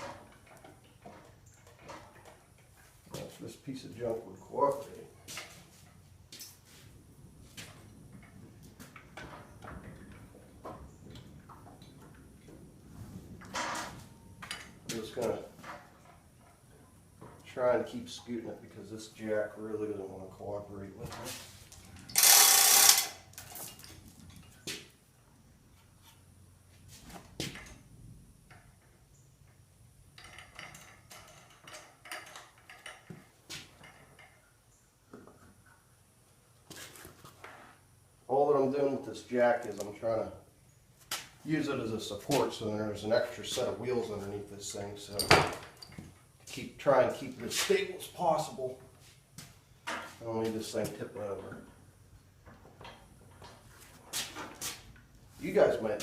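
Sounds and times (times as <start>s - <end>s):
wheeled jack clanking and rattling: 22.1s - 24.5s, 30.2s - 34.4s.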